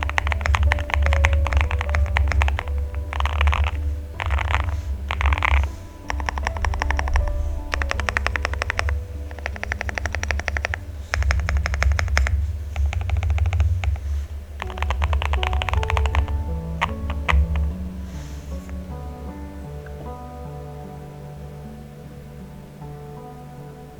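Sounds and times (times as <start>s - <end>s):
fast typing on mechanical keyboard: 0.0s - 18.9s
background music: 0.0s - 23.9s.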